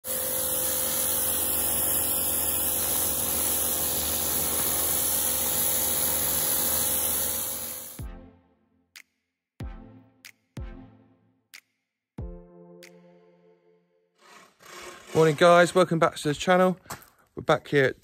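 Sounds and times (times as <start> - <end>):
pressure washer spraying: 0.0 - 8.0.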